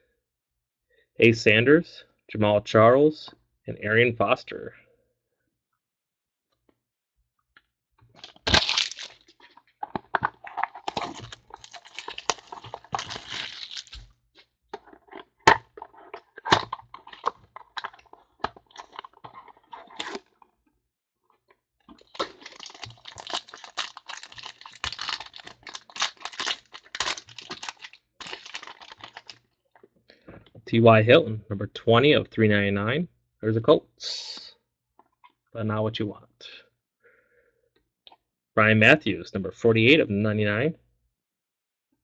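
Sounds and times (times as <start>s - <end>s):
wrapper tearing and crinkling: 8.2s - 14.1s, 16.4s - 20.3s, 22.0s - 29.4s.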